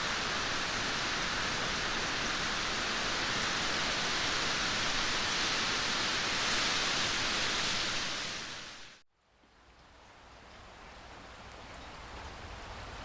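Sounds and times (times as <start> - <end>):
heavy rain: 0.0 - 9.0.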